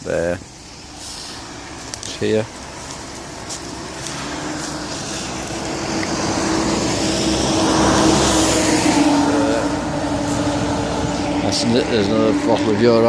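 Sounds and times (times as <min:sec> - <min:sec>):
car passing on road: 0:00.0 - 0:13.0.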